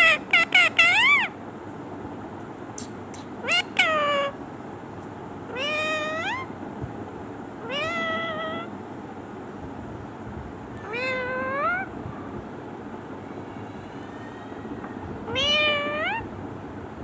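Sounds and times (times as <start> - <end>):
parrot high chirps: 0.0 - 1.4, 2.8 - 4.4, 5.5 - 6.5
parrot meow-like calls: 0.0 - 1.4, 3.4 - 4.4, 5.5 - 6.6, 7.6 - 8.7, 10.8 - 12.0, 13.7 - 16.3.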